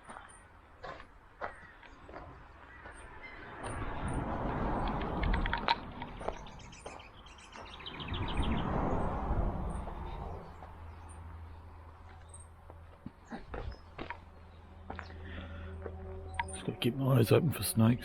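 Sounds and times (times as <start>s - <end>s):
rustling noise with low rumble: 3.6s - 16.5s
small birds chirping and trilling: 6.0s - 18.0s.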